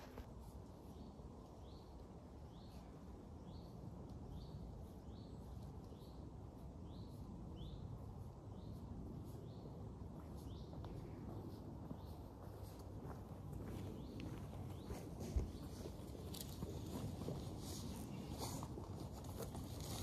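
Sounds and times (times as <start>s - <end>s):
low woodland background noise: 0.0s - 20.0s
small bird chirping: 0.8s - 12.3s.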